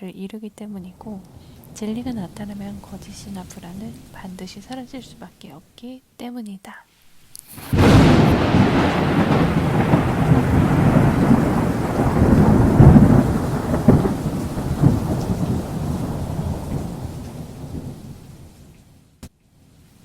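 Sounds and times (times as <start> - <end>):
thunder rumbling: 0.7 - 5.4, 7.5 - 18.7
rain: 0.8 - 5.4, 7.1 - 20.0.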